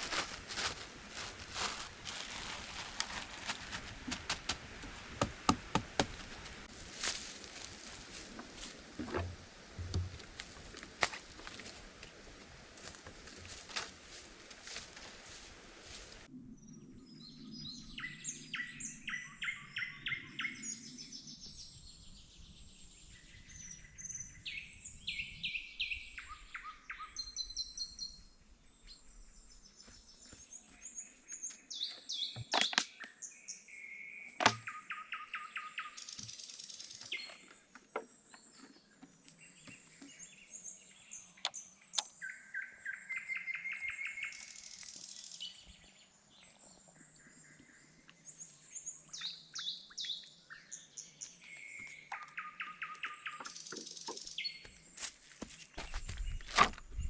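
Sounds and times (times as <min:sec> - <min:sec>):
songbirds singing: 0:00.0 - 0:57.0
sharp knocks: 0:05.1 - 0:06.2.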